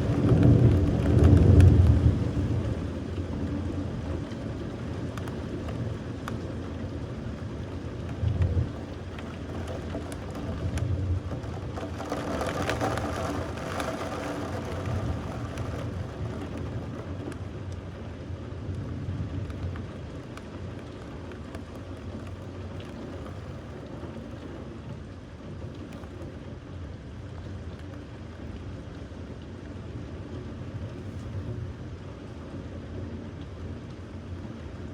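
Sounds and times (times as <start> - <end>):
thunder rumbling: 0.0 - 4.4
steady rain: 0.0 - 34.9.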